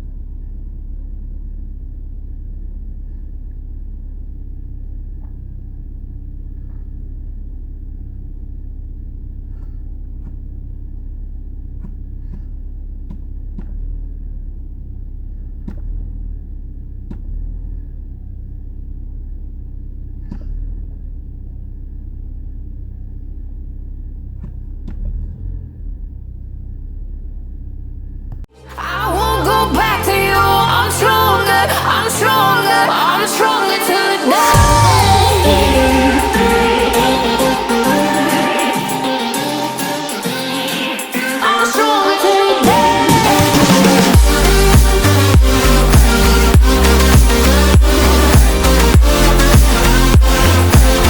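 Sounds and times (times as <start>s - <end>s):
car engine idling: 0.0s - 51.0s.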